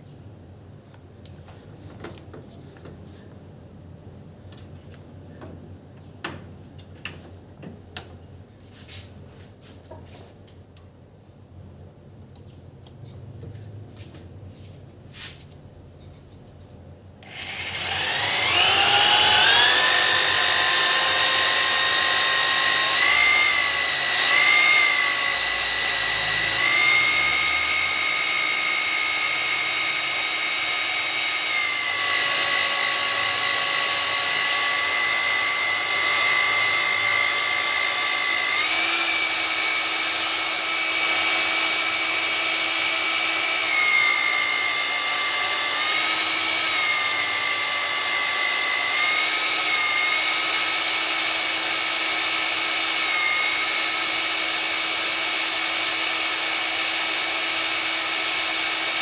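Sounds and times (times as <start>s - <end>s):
electric drill whining: 17.2s - 59.0s.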